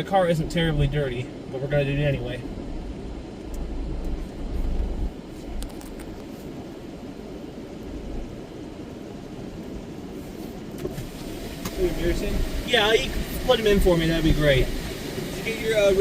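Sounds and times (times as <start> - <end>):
car rumble from inside: 0.0 - 6.2, 10.4 - 16.0.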